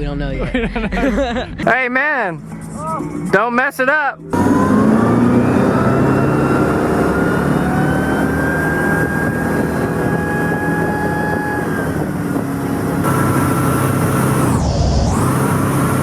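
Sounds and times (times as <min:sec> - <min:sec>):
boat engine drone: 0:00.0 - 0:16.0
wind and water rushing: 0:08.2 - 0:16.0.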